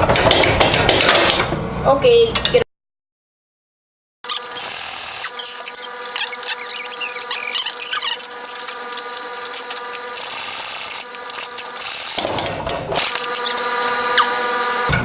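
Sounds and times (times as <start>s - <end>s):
power tool motor whining: 4.3s - 12.2s, 13.0s - 14.9s.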